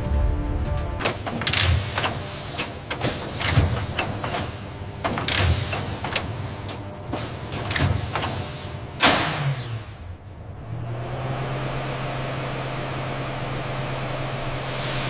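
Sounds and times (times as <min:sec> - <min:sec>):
pneumatic hissing strokes: 0:01.2 - 0:08.9, 0:14.6 - 0:15.0.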